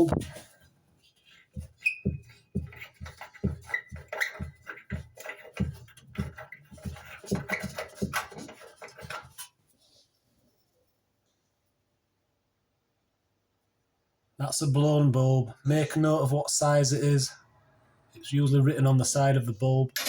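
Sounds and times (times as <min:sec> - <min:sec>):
bulb squeak: 0:01.7 - 0:04.9.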